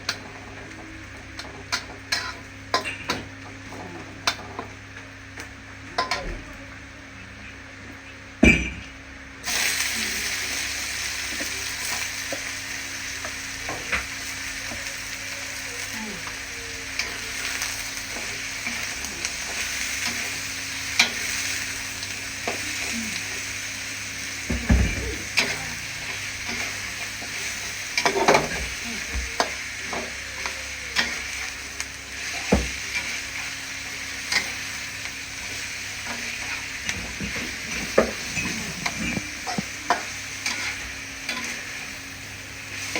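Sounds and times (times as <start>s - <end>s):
meat sizzling in hot oil: 9.4s - 42.9s.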